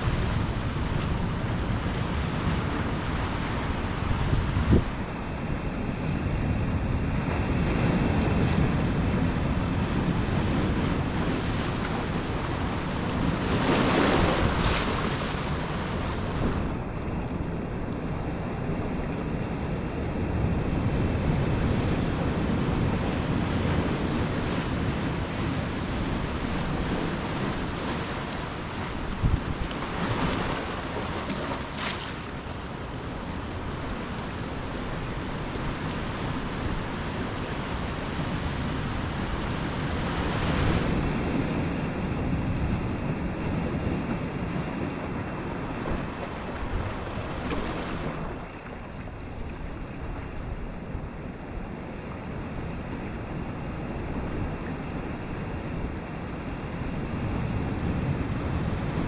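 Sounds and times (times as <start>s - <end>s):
ocean surf washing in: 0.0s - 6.3s, 7.0s - 19.2s, 20.6s - 50.6s
wind buffeting microphone: 0.0s - 51.3s
wave breaking: 8.4s - 18.3s, 22.8s - 41.3s, 42.8s - 50.6s.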